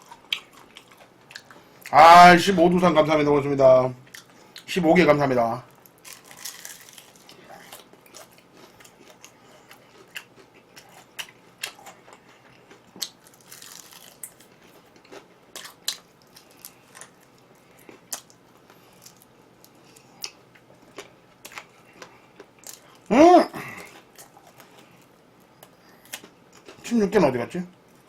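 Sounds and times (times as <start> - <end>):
person chewing and crunching food: 0.0 - 2.0, 4.0 - 4.7, 5.7 - 26.8.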